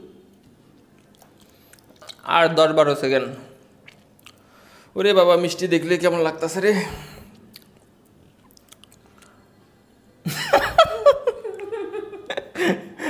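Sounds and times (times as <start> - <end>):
faint chewing noises: 0.2 - 2.3, 3.6 - 4.8, 7.2 - 9.8.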